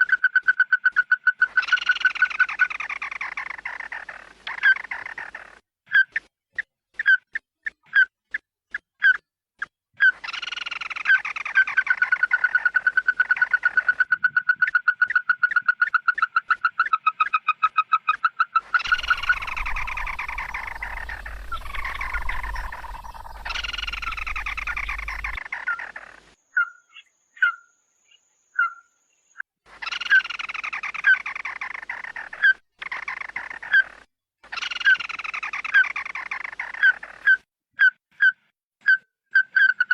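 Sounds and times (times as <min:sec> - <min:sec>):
bird whistling notes: 0:18.8 - 0:25.4
low rumble: 0:18.8 - 0:25.4
bird chattering: 0:18.8 - 0:25.9.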